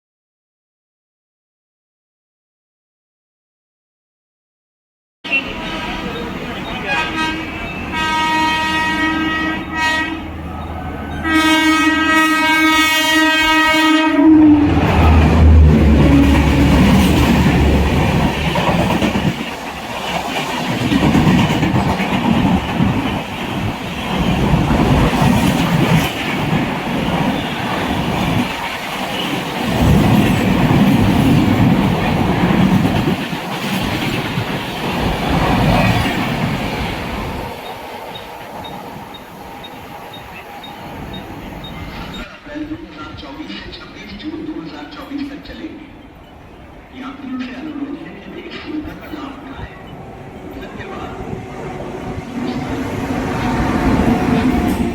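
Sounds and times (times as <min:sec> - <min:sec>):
locomotive horn blasts: 0:05.3 - 0:15.2
train rumble: 0:05.3 - 0:54.9.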